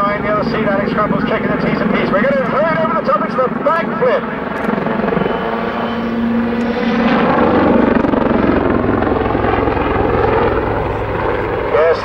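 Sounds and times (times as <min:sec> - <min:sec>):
helicopter engines running: 0:00.0 - 0:12.0
helicopter rotor thudding: 0:04.2 - 0:11.7.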